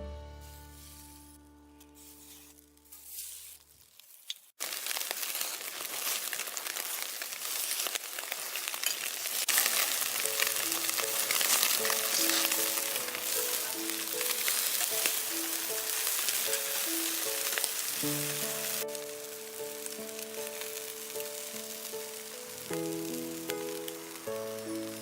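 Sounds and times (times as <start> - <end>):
skewers sizzling: 0.0 - 25.0
soft background music: 10.3 - 25.0.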